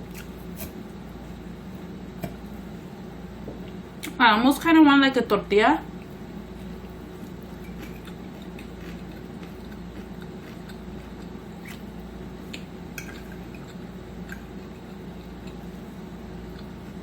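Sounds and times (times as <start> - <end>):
close-up chewing: 6.6 - 15.7.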